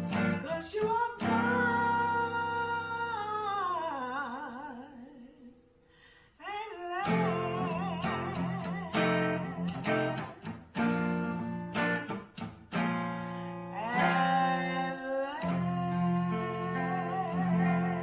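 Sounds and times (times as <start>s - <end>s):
plucked guitar notes: 0.0s - 3.1s, 7.0s - 18.0s.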